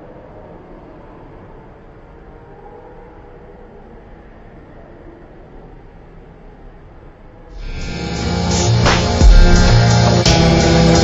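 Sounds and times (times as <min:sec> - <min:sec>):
steady low rumbling: 0:07.5 - 0:11.0.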